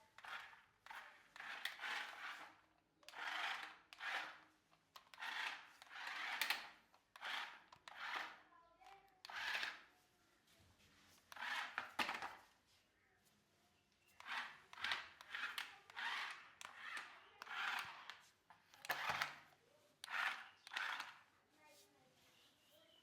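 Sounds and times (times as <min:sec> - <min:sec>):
toy car motor whirring: 0:00.0 - 0:09.9, 0:11.2 - 0:12.4, 0:14.1 - 0:21.3.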